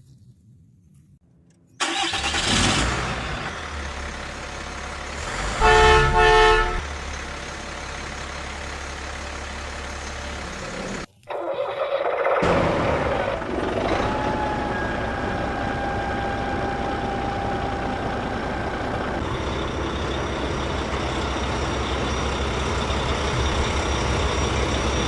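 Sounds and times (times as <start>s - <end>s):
vehicle engine running: 2.1s - 11.2s, 12.4s - 25.0s
vehicle horn honking: 5.5s - 6.9s.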